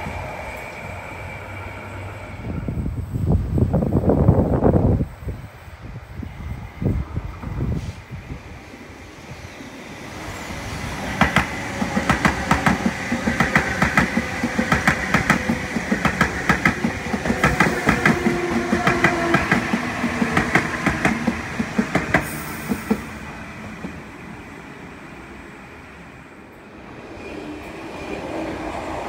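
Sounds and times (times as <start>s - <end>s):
train running rumble: 10.1s - 24.4s.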